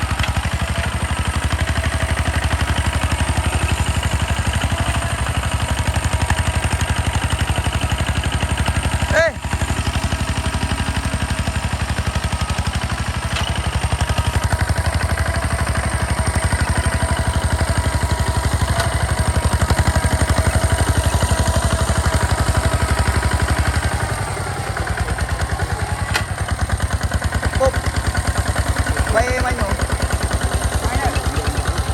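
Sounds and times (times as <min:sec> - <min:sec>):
tractor engine running: 0:00.0 - 0:31.9.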